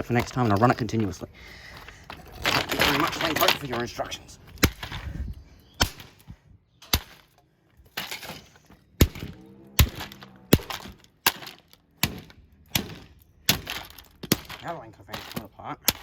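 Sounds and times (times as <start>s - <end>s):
plastic housing being smashed: 1.8s - 5.1s, 6.8s - 16.0s.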